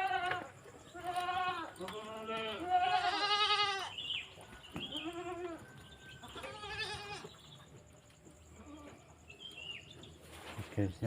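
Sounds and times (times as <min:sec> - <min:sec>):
quavering animal cries: 0:00.0 - 0:04.1, 0:04.9 - 0:07.5.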